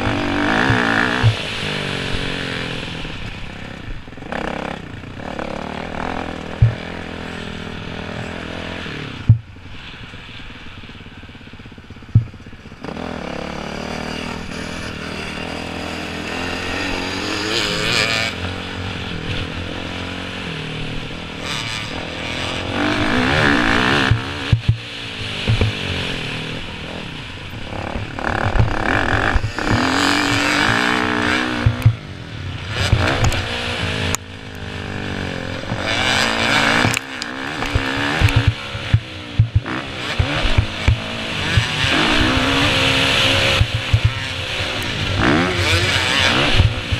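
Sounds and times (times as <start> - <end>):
dirt bike engines revving: 0.0 - 46.9
sharp thumps: 6.2 - 7.2, 9.2 - 9.5, 12.1 - 12.5, 24.0 - 25.9, 27.9 - 32.0, 32.8 - 34.3, 35.7 - 44.4.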